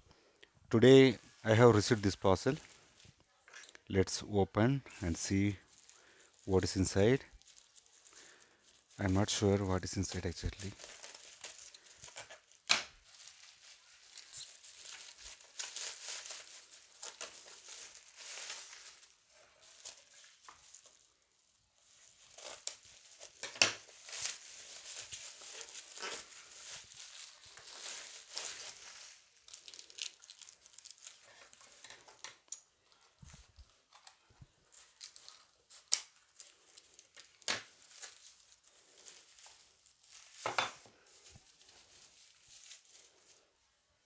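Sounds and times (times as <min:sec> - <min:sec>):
packaging tearing and crinkling: 0:05.3 - 0:32.2, 0:34.7 - 0:40.5.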